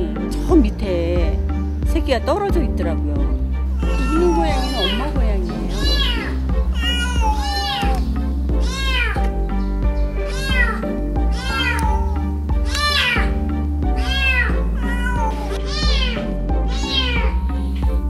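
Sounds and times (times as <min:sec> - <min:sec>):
background music: 0:00.0 - 0:18.0
cat meowing: 0:03.7 - 0:09.3, 0:10.2 - 0:17.8.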